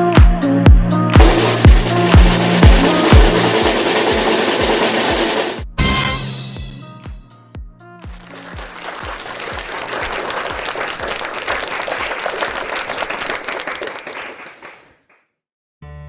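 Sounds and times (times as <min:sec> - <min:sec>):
music with kick-drum beat: 0:00.0 - 0:09.9
people clapping: 0:01.1 - 0:05.6, 0:08.0 - 0:15.2.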